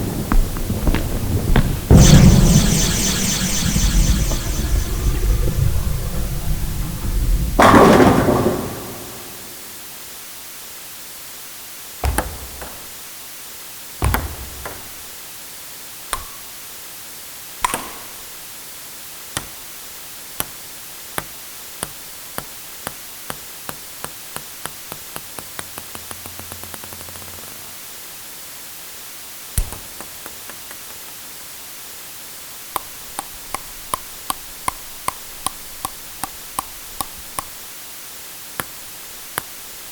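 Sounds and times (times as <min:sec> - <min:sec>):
ping-pong ball bouncing on table: 0:16.2 - 0:16.4
ping-pong ball hits: 0:16.2 - 0:16.5.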